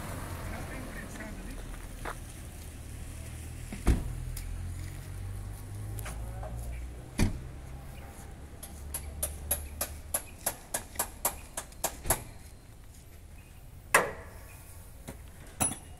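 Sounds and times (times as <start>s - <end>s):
diesel truck engine hum: 0.0s - 10.1s.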